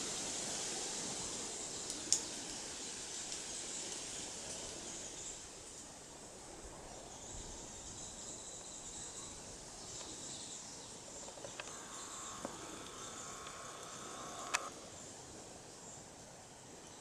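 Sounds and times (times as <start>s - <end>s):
high-pitched insect chorus: 0.0s - 16.2s
faint clicks: 1.8s - 2.6s, 11.2s - 14.8s.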